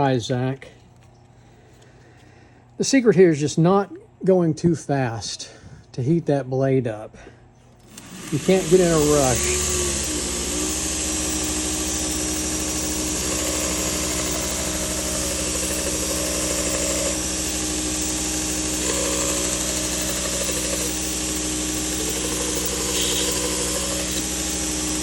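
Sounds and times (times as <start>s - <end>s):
belt sander motor hum: 7.8s - 25.0s
blade grinding on sanding belt: 7.9s - 25.0s.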